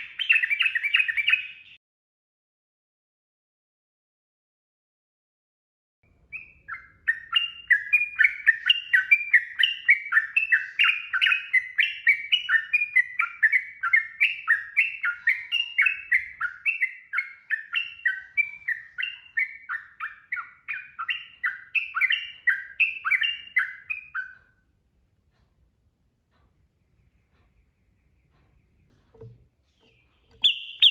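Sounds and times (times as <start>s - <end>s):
bird singing bubbly notes: 0.0s - 1.8s, 6.3s - 24.4s, 27.6s - 30.9s.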